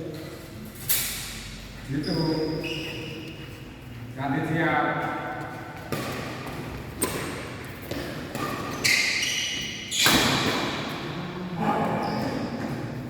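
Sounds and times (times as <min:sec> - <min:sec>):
shoe squeaking on court floor: 0:01.9 - 0:03.9, 0:05.0 - 0:10.8, 0:11.7 - 0:13.0
racket hitting shuttlecock: 0:05.1 - 0:11.0.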